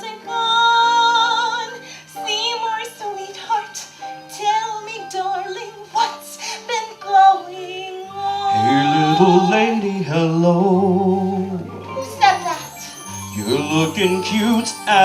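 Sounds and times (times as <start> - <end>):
musical accompaniment: 0.0 - 15.0
woman singing wavering melody: 4.4 - 9.8
low sustained accompaniment part: 8.2 - 15.0.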